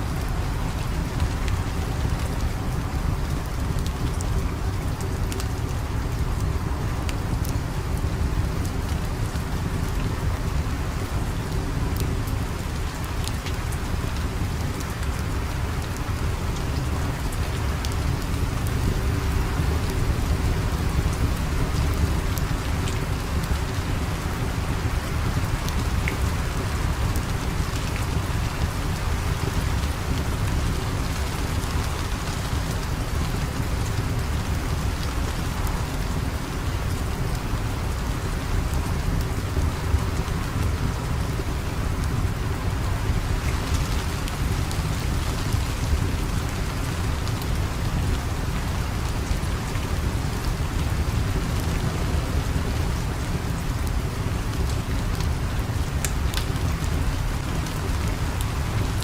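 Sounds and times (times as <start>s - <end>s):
heavy rain: 0.0s - 59.0s
sharp crackles and ticks: 50.4s - 59.0s.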